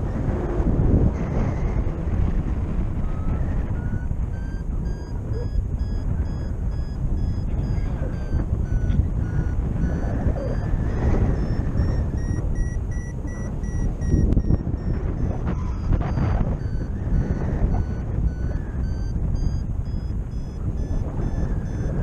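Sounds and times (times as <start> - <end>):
wind rush on microphone: 0.0 - 22.0
variometer short beeps: 3.0 - 22.0.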